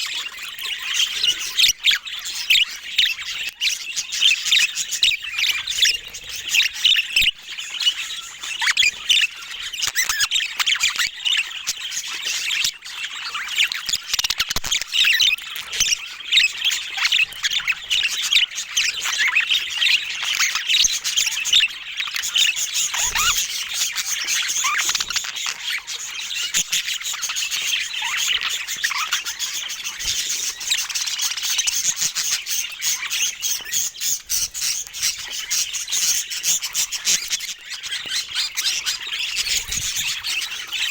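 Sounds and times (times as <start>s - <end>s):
budgerigars chirping and squawking: 0.0s - 40.9s.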